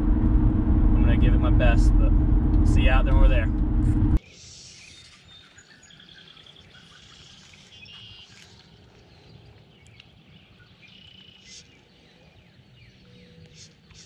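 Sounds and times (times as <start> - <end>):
faint birdsong: 4.2 - 14.0.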